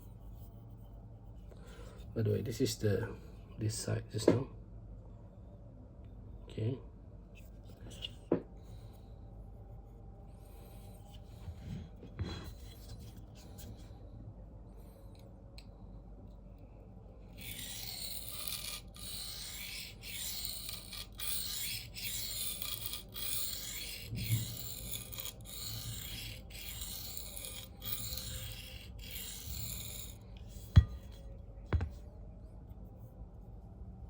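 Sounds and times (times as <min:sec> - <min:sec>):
knife rasping on sharpening plate: 0:17.4 - 0:31.2.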